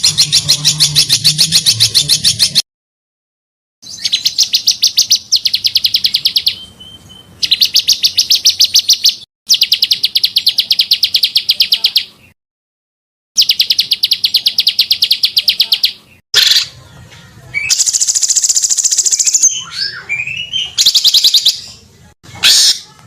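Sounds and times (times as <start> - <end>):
buzzing bird trill: 0.0 - 2.6
songbird trills: 3.8 - 12.2.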